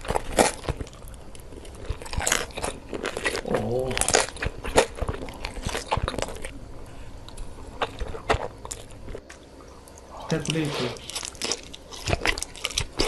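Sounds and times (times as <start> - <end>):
person chewing crunchy food: 0.0 - 13.0.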